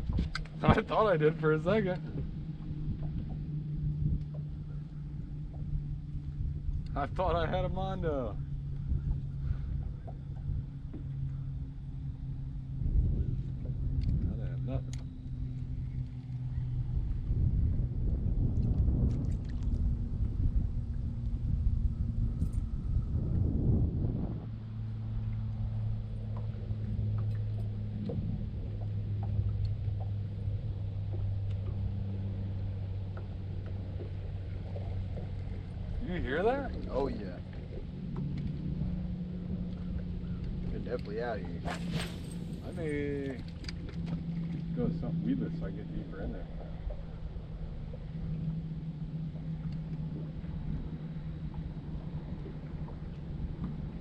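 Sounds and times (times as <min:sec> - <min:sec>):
boat motor humming: 0:00.0 - 0:54.0
wind rumble on microphone: 0:00.0 - 0:54.0
faint ticks: 0:13.4 - 0:16.4, 0:31.1 - 0:31.9, 0:49.3 - 0:50.3.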